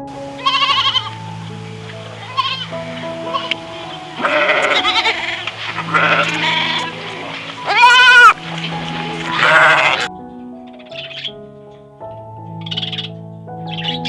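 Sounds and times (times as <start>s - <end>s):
background music with held notes: 0.0s - 14.0s
animal bleating: 0.4s - 1.1s, 2.2s - 3.6s, 4.2s - 8.4s, 9.3s - 10.1s.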